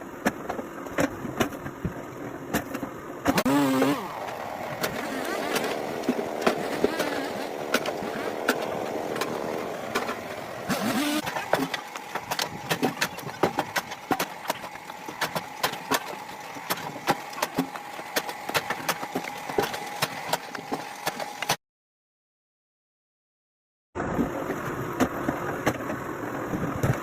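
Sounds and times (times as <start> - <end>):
sharp clicks and knocks: 0.2 - 21.6
machine hum: 2.7 - 21.5.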